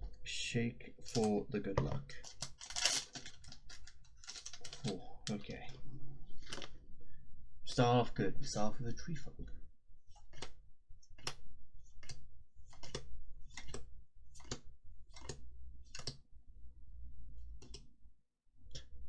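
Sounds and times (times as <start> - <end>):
trading cards flicked: 1.1 - 1.4, 2.3 - 5.4.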